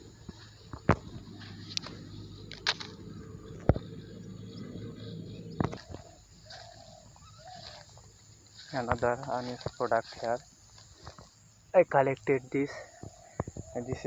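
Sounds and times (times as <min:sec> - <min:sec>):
steady low hum: 0:00.0 - 0:14.0
sharp clicks and knocks: 0:00.3 - 0:03.0.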